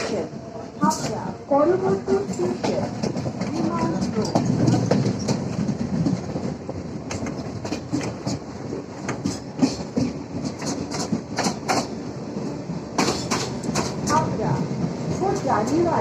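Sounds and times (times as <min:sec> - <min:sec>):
train rumbling inside coach: 0:00.0 - 0:16.0
wheels clicking over rail joints: 0:00.8 - 0:12.0, 0:12.9 - 0:14.5.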